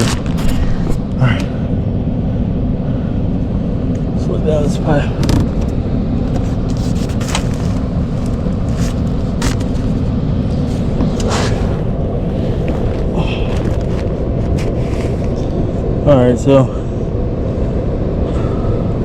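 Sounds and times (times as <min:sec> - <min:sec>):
steady low rumble: 0:00.0 - 0:19.0
scrapes and knocks from crawling: 0:06.3 - 0:10.0.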